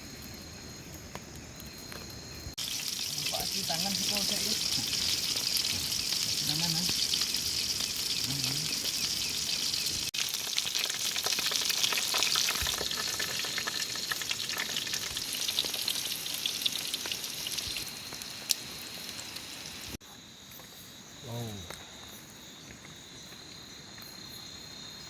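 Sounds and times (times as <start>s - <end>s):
oil sizzling in deep fryer: 2.5s - 20.0s.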